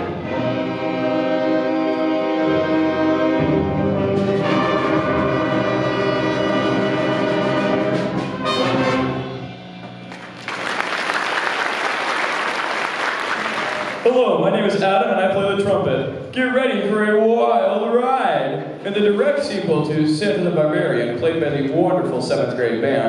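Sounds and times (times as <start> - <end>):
concert band playing: 0.0 - 17.0
audience applauding: 10.0 - 14.2.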